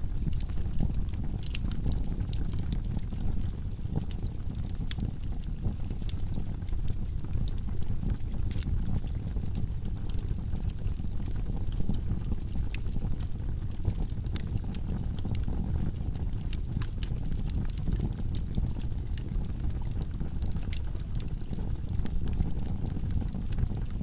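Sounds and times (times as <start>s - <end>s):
flames rumbling: 0.0s - 24.0s
wood crackling and popping: 0.0s - 24.0s.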